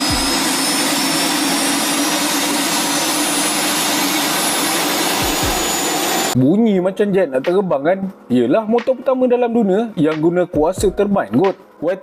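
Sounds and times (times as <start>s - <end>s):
thin high whine: 0.0s - 6.4s
turbine engine jet-like rush: 0.0s - 6.4s.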